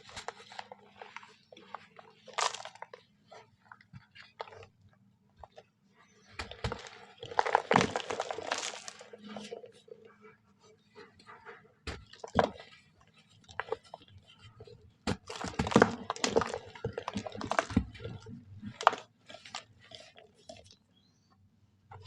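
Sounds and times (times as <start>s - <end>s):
sand crunching: 6.6s - 9.5s.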